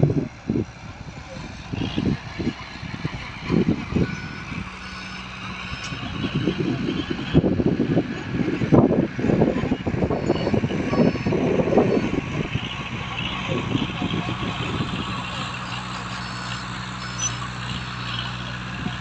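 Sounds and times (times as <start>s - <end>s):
heavy earthmoving machinery running: 0.0s - 19.0s.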